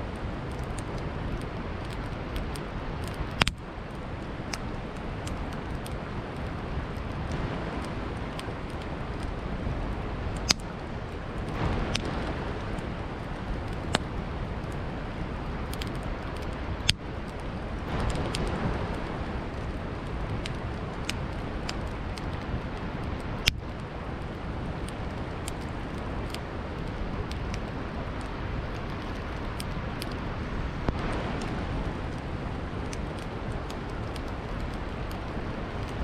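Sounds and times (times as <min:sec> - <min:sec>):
campfire crackling: 0:00.0 - 0:36.0
river flowing: 0:00.0 - 0:36.0
sharp pops of fire: 0:00.2 - 0:03.6, 0:04.3 - 0:36.0.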